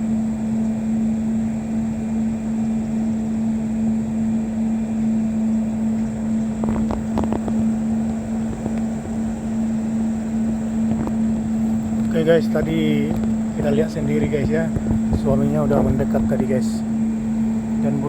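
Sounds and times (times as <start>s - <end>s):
low motor hum: 0.0s - 18.0s
wind noise: 6.1s - 17.8s.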